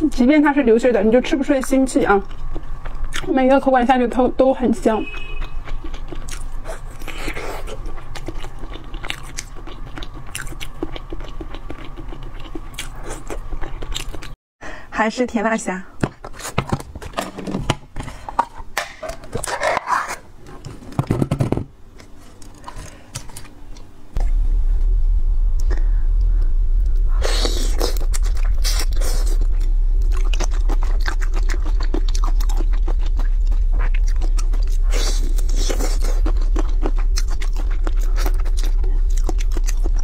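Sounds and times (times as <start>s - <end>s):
shrimp crunched and chewed: 5.0s - 14.4s, 27.4s - 40.0s
loud steady low hum: 17.2s - 40.0s.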